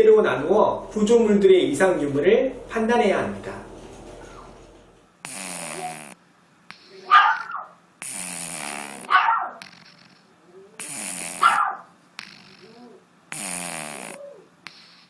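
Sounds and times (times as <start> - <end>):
dog breathing with snoring: 3.8 - 6.2, 8.0 - 11.6, 12.2 - 15.0
dog snorting: 3.8 - 6.2, 6.9 - 15.0.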